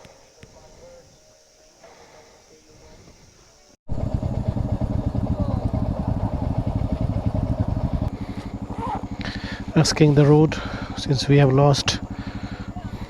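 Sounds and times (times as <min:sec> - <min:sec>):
motorcycle engine pulsing exhaust: 0:03.9 - 0:13.0.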